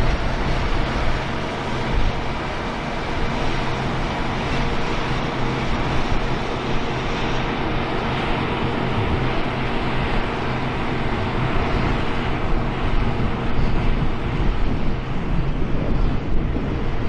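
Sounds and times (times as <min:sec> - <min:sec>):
combine engine drone: 0:00.0 - 0:17.0.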